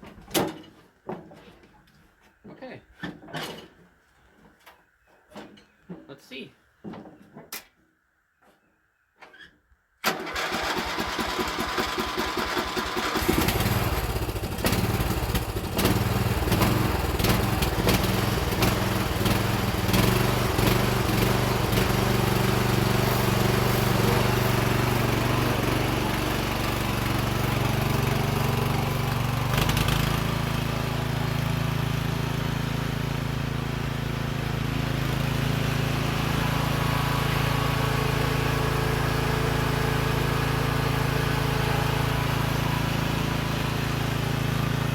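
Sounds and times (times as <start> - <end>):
riding mower engine starting and running: 10.0 - 44.9.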